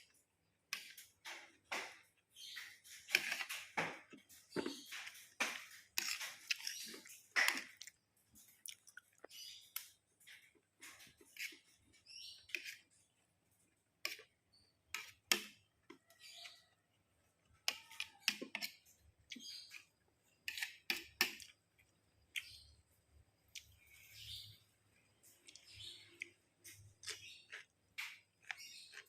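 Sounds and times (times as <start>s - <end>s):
chewing rice: 4.4s - 9.4s, 25.3s - 29.0s.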